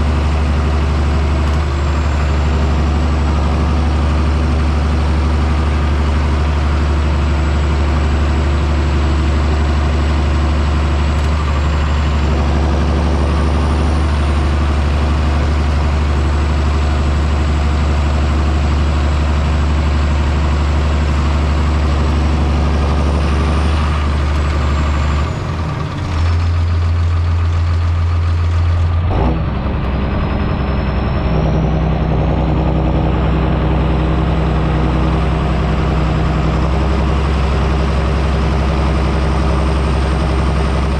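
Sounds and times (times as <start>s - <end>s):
tractor diesel engine running: 0.0s - 40.9s
high whine: 29.0s - 36.6s.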